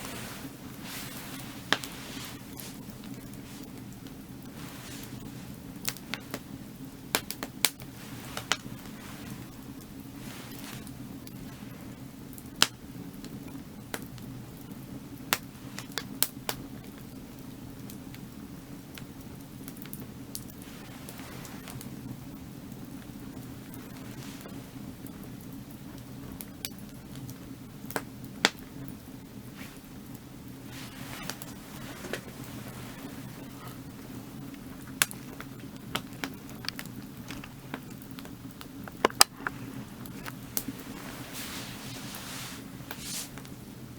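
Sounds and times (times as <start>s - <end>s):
firewood crackling and popping: 0.0s - 43.9s
steady low background noise: 0.0s - 43.9s.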